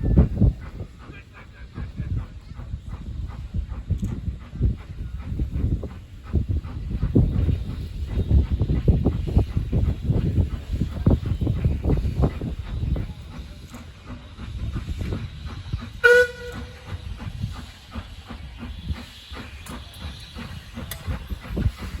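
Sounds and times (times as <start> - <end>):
steam locomotive chuffing: 0.0 - 22.0
steam whistle blast: 16.0 - 16.9.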